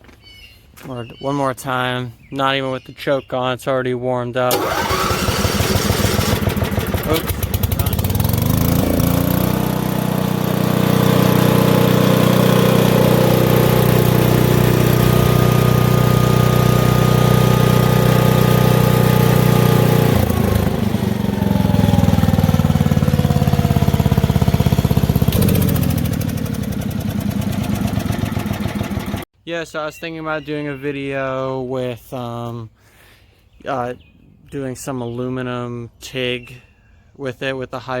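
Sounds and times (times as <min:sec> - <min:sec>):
welder engine running: 0:04.5 - 0:29.2.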